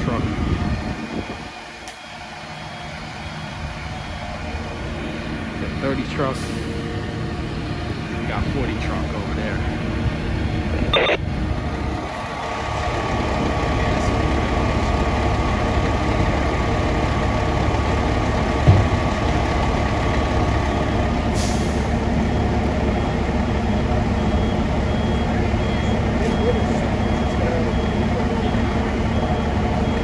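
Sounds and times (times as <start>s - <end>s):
diesel engine rumbling: 0.0s - 30.0s
back-up beeper: 10.8s - 11.3s
air brakes hissing: 21.3s - 22.0s.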